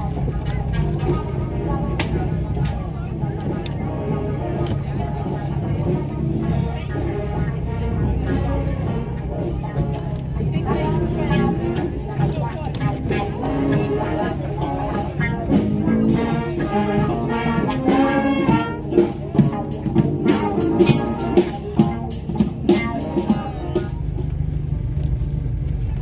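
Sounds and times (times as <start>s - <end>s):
swing band playing: 0.0s - 26.0s
car engine running: 23.5s - 26.0s.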